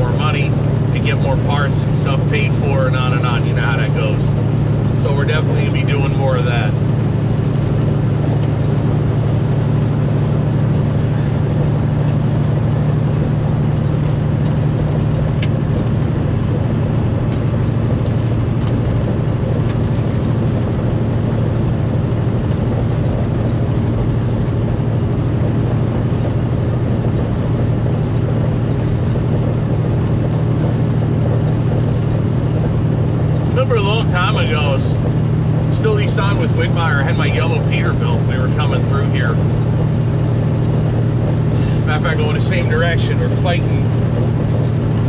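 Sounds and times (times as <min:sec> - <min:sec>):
diesel truck engine drone: 0:00.0 - 0:45.0
road noise: 0:00.0 - 0:45.0.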